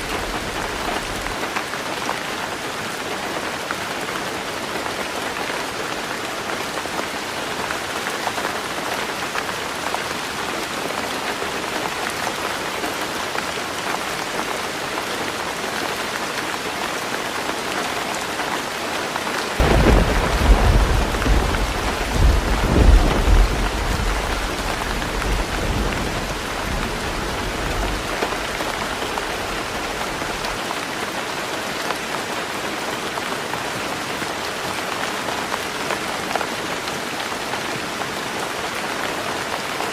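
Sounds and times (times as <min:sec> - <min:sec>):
heavy rain on a tin roof: 0:00.0 - 0:39.9
thunder rumbling: 0:19.6 - 0:30.6.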